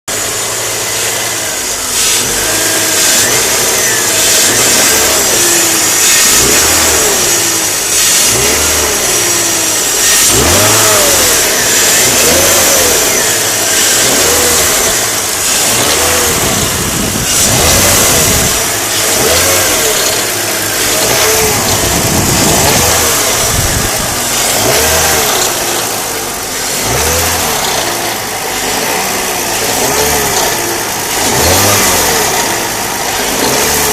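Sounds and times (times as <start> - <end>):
car engine revving in blips: 0.0 - 33.9.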